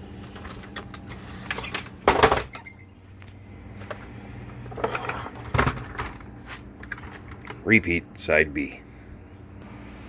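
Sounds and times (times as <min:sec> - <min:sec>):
plastic parts clattering: 0:00.3 - 0:02.7, 0:04.7 - 0:06.2.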